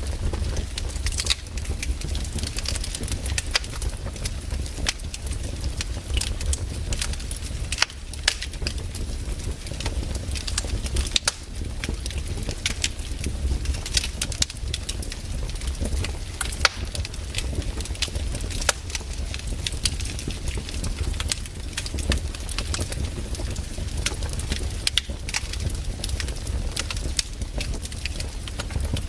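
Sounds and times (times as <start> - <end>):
campfire crackling: 0.0 - 29.0.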